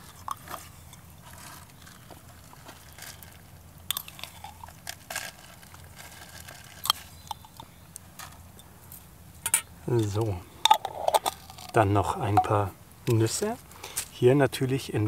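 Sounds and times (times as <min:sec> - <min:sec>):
spoon scraping a bowl: 0:00.0 - 0:01.8.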